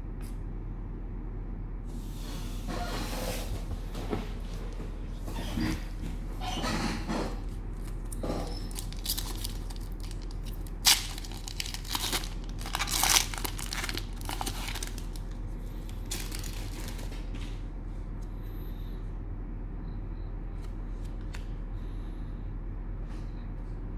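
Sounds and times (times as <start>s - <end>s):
cellophane crinkling and tearing: 7.3s - 17.5s.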